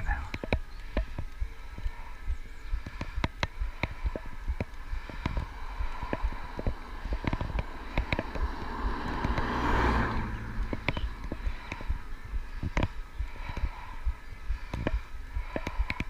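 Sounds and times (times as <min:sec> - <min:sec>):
rushing swell of noise: 0:00.0 - 0:16.0
bike tyres on gravel: 0:03.9 - 0:14.0.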